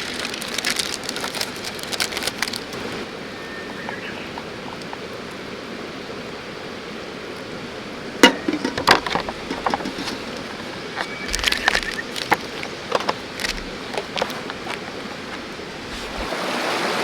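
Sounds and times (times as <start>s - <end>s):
river rushing: 2.4s - 17.0s.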